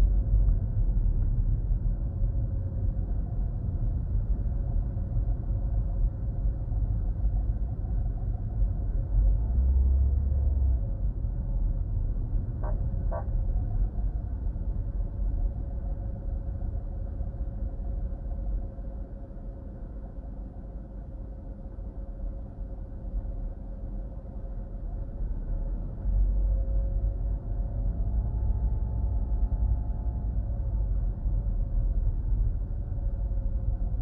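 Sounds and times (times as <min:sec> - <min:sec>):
car engine and road noise: 0:00.0 - 0:17.3
steady whine: 0:00.0 - 0:34.0.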